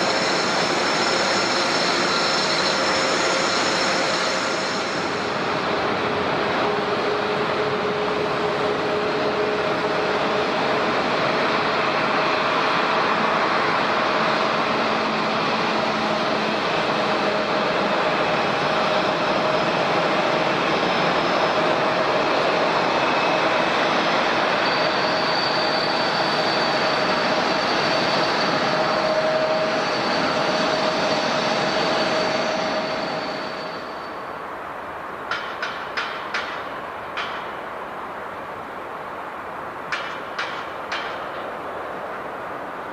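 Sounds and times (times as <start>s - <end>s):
jet engines running: 0.0s - 35.5s.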